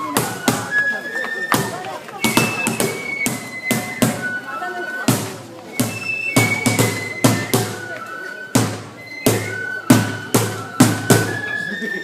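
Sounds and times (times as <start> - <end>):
sharp drum strikes: 1.6 - 4.3, 5.1 - 7.8, 8.5 - 11.4.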